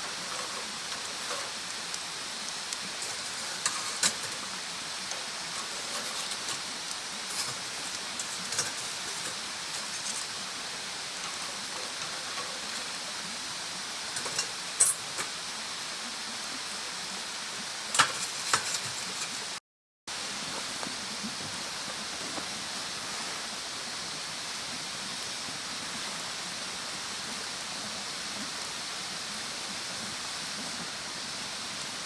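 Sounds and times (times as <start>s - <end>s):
bonfire hissing: 0.0s - 32.0s
fire crackling and popping: 0.1s - 15.4s.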